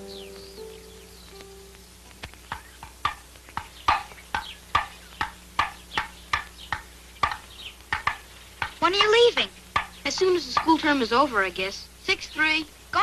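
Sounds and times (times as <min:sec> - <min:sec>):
ping-pong ball hitting paddles: 0:02.5 - 0:10.8.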